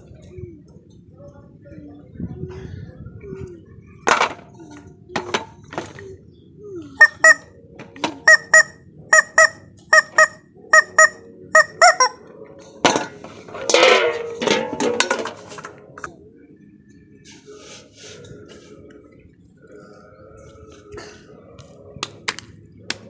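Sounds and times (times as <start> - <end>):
goose-like nasal honks: 7.0 - 7.5, 8.2 - 12.2.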